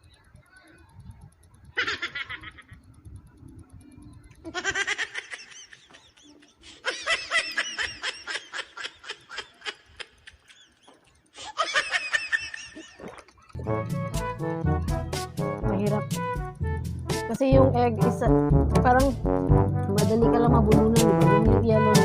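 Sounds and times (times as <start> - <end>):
high-pitched giggling: 1.7 - 3.1, 4.4 - 13.6
music with low beat: 13.6 - 22.0.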